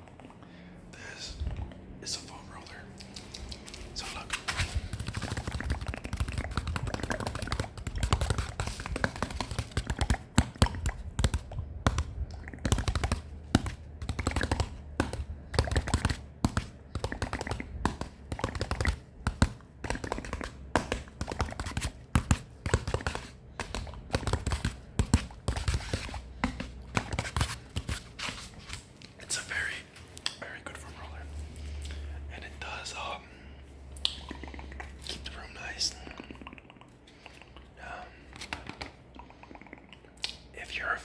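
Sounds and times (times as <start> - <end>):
fingers tapping on foam roller: 4.7 - 28.1.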